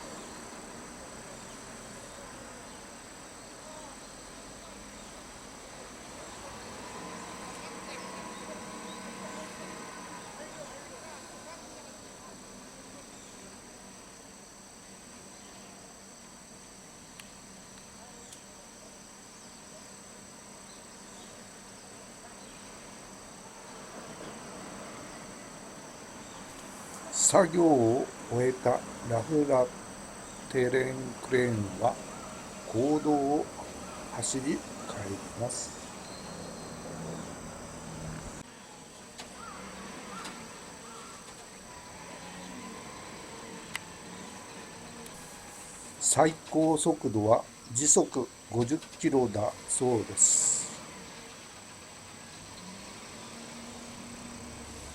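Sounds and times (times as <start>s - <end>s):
insects trilling: 0.0s - 54.9s
low engine hum: 23.6s - 38.4s.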